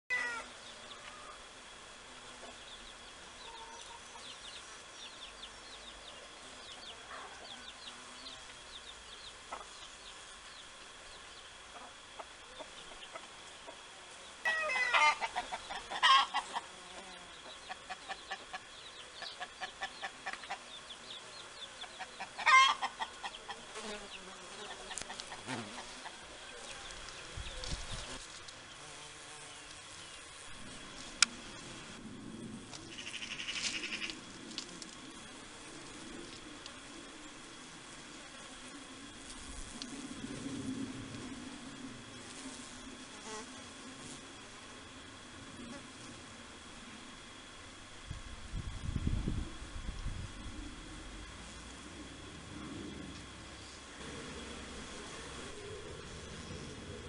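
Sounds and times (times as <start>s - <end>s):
rapid repeated bird calls: 2.2s - 29.0s, 32.8s - 34.3s.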